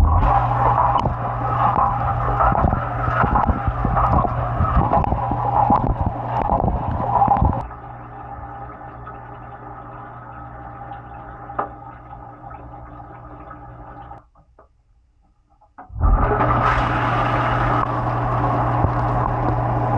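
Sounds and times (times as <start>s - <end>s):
dishwasher motor hum: 0.0s - 14.2s, 15.8s - 19.9s
dishwasher water spraying: 16.2s - 19.9s.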